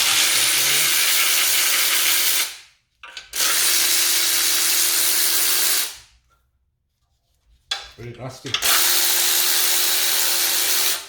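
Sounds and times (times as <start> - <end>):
power tool whining: 0.0 - 2.2.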